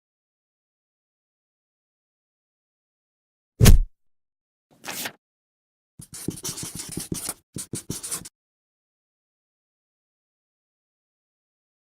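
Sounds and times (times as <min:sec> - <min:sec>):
scratchy rustling noise: 0:04.8 - 0:05.2.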